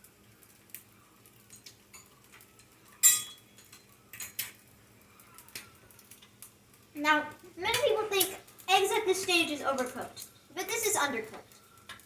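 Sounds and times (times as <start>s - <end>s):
egg frying in hot oil: 0.0s - 12.0s.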